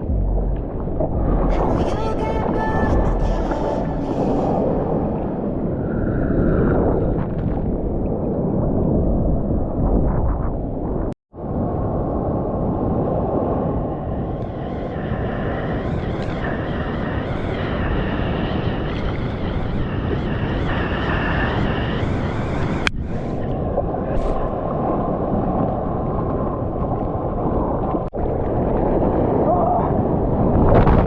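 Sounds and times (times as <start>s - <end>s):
seawater and wind rushing: 0.0s - 31.0s.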